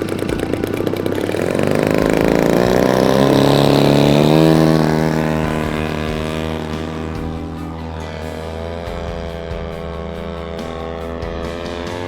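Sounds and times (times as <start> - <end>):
model plane engine and propeller: 0.0 - 12.0.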